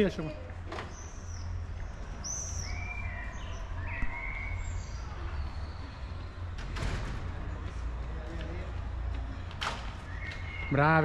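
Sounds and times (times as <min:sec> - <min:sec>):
whistled bird calls: 0:02.2 - 0:06.4, 0:10.0 - 0:11.0.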